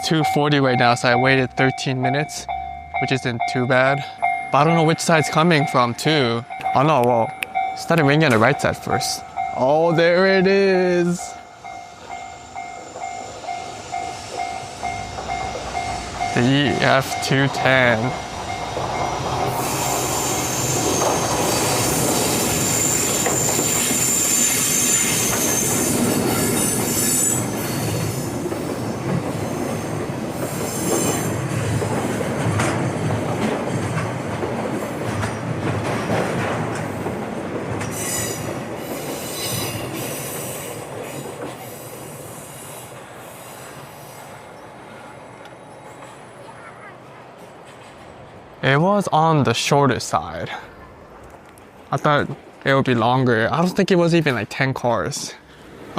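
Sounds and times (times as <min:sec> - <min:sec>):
freight wagons rumbling over rails: 0:00.0 - 0:55.9
wheel squeal: 0:18.2 - 0:31.4.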